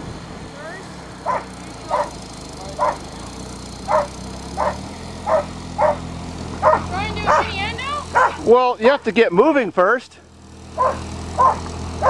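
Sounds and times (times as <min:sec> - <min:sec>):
engine running: 0:00.0 - 0:12.0
dog barking: 0:01.2 - 0:02.2, 0:02.8 - 0:03.1, 0:03.9 - 0:06.0, 0:06.6 - 0:08.4, 0:10.8 - 0:11.7.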